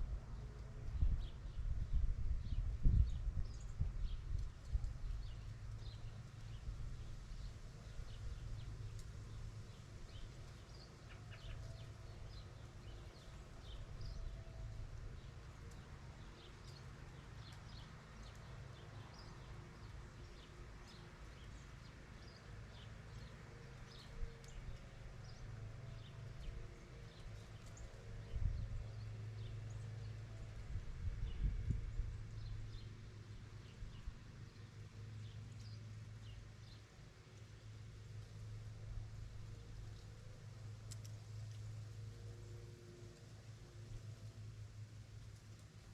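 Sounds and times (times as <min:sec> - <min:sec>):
steady low rumble: 0:00.0 - 0:10.4, 0:27.8 - 0:34.2.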